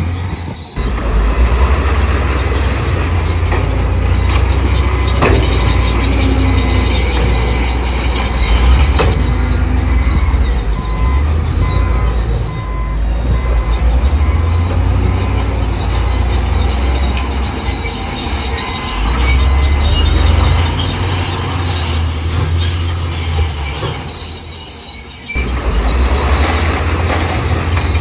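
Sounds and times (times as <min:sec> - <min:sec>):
bulldozer diesel engine rumbling: 0:00.0 - 0:28.0
short metallic squeals: 0:00.0 - 0:28.0.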